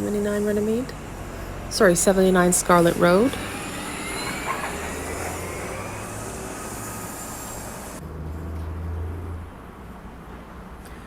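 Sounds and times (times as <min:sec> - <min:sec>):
faint rising whine: 0:00.0 - 0:08.0
high hiss: 0:00.0 - 0:08.0
bus engine hum: 0:00.0 - 0:09.5
street traffic noise: 0:00.0 - 0:11.0.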